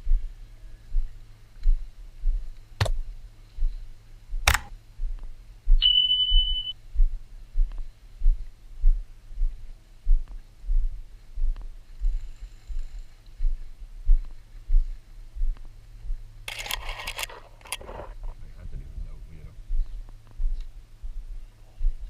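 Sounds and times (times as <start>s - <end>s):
sharp cracks: 4.5s - 4.7s
short high beep: 5.8s - 6.8s.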